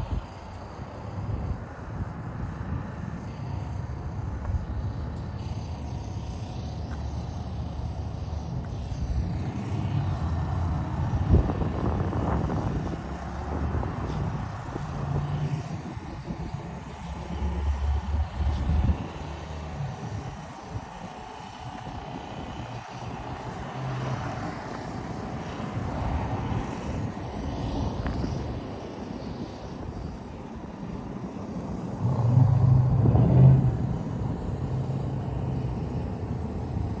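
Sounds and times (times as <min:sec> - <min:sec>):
low rumbling noise: 0:31.6 - 0:37.0.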